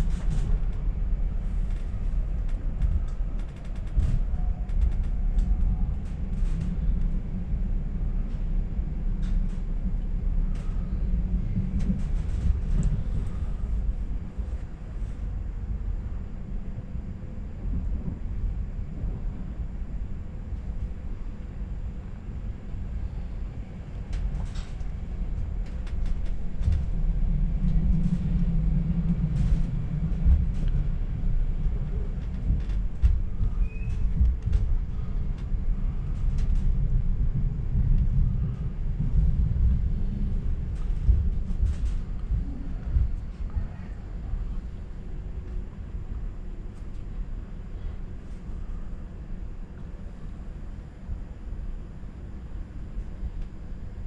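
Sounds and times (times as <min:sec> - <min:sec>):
light clicks and rattles: 0:00.0 - 0:15.2, 0:23.8 - 0:47.4
wheels rumbling on rails: 0:00.0 - 0:54.0.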